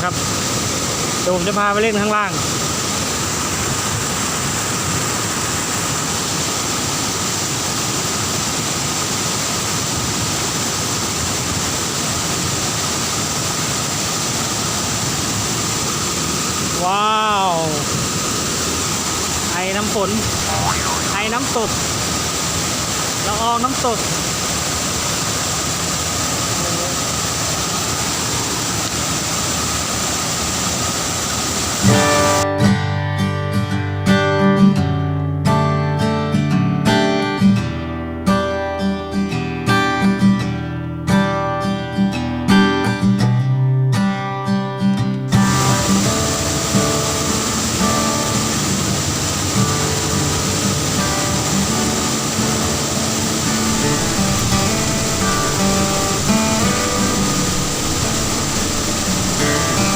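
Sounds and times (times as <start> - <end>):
waterfall rushing: 0.0 - 32.4, 45.4 - 59.9.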